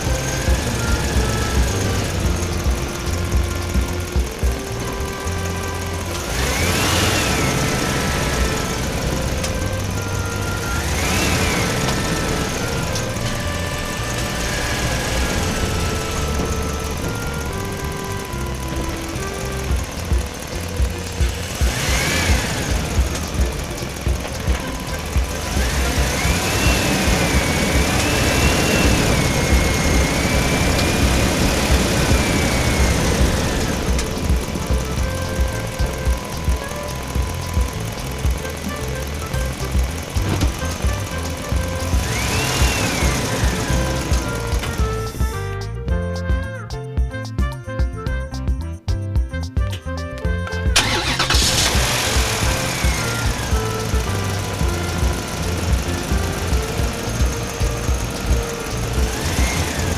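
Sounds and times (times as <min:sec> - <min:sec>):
toy motor buzz and rattle: 0:00.0 - 0:45.3
electronic jingle notes: 0:00.0 - 0:46.7
engine running with low rumble: 0:00.0 - 0:48.3, 0:48.9 - 0:59.9.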